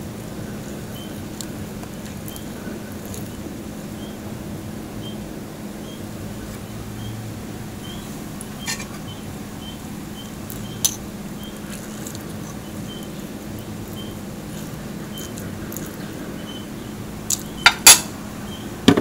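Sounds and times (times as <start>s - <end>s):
chewing crispy food: 0.2s - 4.2s, 7.7s - 17.7s.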